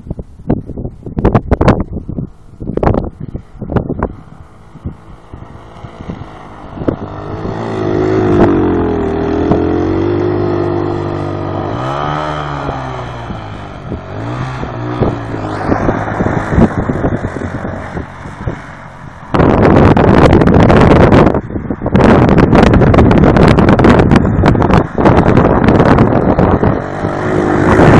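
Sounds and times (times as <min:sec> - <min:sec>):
loud rush of noise: 0:02.4 - 0:27.9
atv engine revving: 0:02.8 - 0:27.9.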